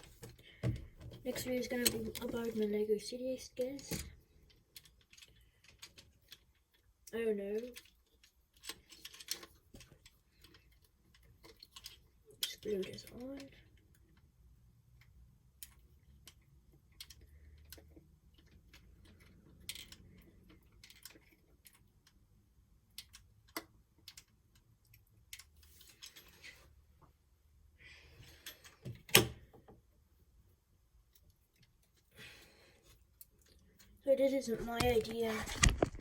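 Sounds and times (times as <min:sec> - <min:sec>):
plastic parts clicking and tapping: 0:00.0 - 0:02.6, 0:03.6 - 0:14.3, 0:14.9 - 0:26.2, 0:34.6 - 0:36.0.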